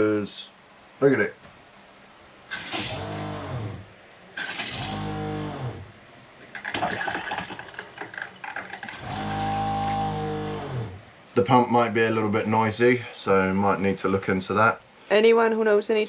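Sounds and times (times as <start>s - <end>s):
water pump humming in bursts: 2.5s - 11.2s
water splashing: 6.4s - 9.5s.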